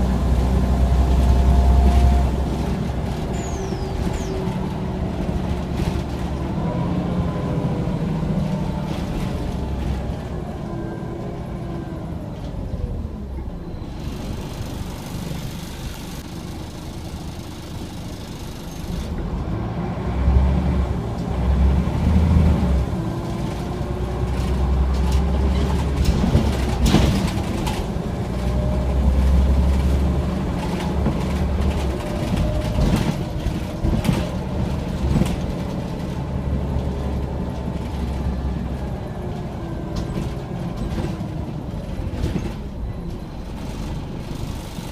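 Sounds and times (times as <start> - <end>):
bus body rattling and knocking: 0.0 - 10.7, 20.6 - 44.9
bus diesel engine droning: 0.0 - 44.9.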